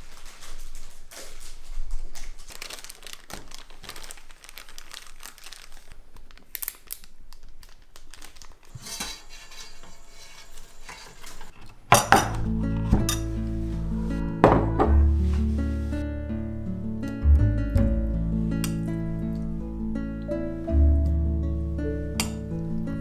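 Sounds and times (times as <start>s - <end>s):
crinkling: 0.0s - 23.0s
dishes clinking: 8.8s - 15.9s, 22.1s - 22.8s.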